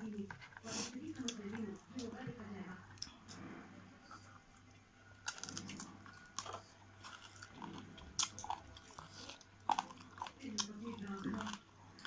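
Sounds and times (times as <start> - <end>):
person chewing food: 2.9 - 12.0.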